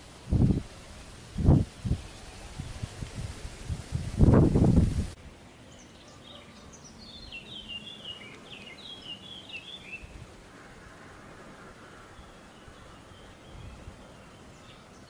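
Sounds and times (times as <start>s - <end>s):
wind buffeting microphone: 0.0s - 5.2s
songbird chirping and trilling: 5.4s - 10.2s, 11.8s - 15.0s.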